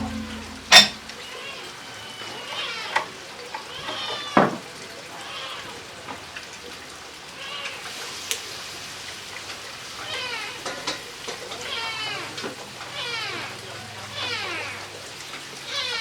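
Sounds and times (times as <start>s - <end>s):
sharp knock: 0.0s - 1.2s.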